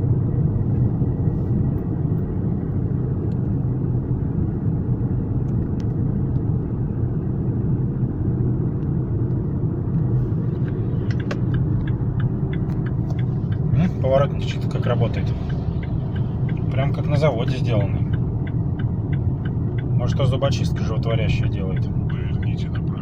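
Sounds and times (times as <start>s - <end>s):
car road and engine rumble: 0.0s - 23.0s
turn indicator ticking: 8.7s - 23.0s.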